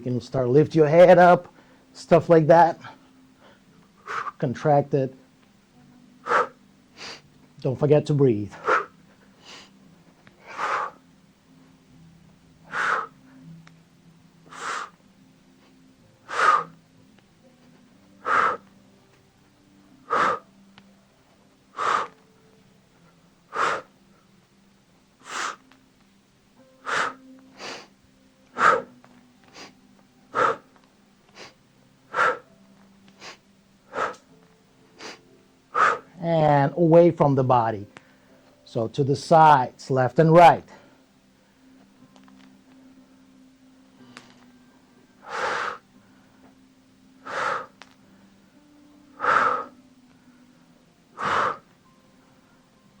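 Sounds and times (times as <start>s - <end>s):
person breathing forcefully: 2.8s - 4.4s, 6.2s - 7.3s, 8.5s - 9.8s, 10.4s - 11.0s, 12.6s - 13.4s, 14.4s - 15.0s, 15.6s - 16.8s, 18.2s - 18.7s, 20.0s - 20.6s, 21.7s - 22.2s, 23.5s - 24.0s, 25.2s - 25.6s, 26.8s - 27.9s, 28.5s - 30.7s, 31.3s - 32.5s, 33.2s - 34.3s, 35.0s - 36.2s, 45.2s - 46.5s, 47.2s - 48.4s, 49.1s - 51.7s.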